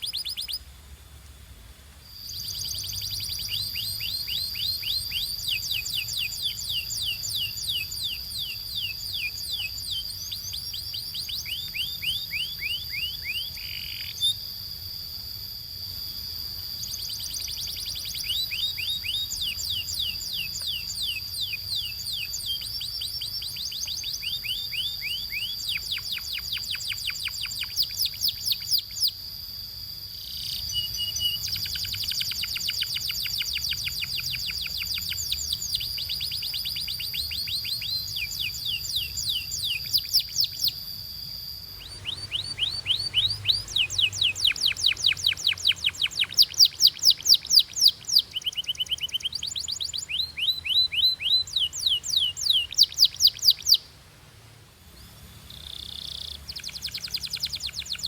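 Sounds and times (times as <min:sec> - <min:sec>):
canary trilling: 0:30.2 - 0:53.8.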